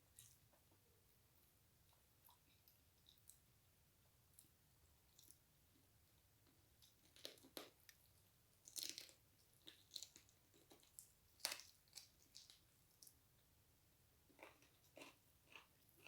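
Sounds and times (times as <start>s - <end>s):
person chewing food: 4.3s - 13.2s, 14.3s - 16.0s.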